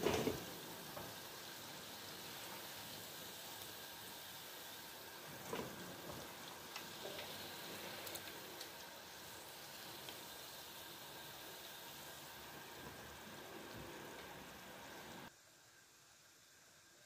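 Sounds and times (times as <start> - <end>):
meatballs sizzling in oil: 0.0 - 16.9.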